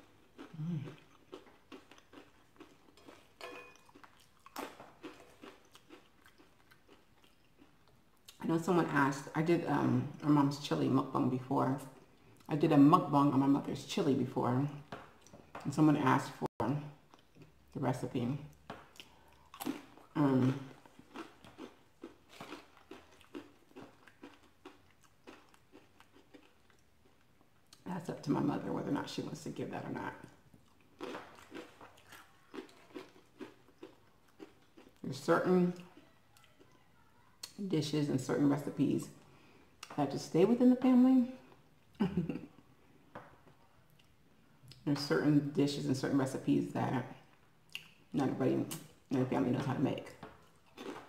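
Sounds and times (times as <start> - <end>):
person chewing: 0.0 - 8.4, 16.9 - 17.8, 18.4 - 27.8, 30.0 - 35.0, 35.8 - 36.8, 47.3 - 48.1, 50.1 - 51.0
spoon clinking on ceramic bowl: 3.4 - 3.9
crunching corn chips: 20.8 - 27.2.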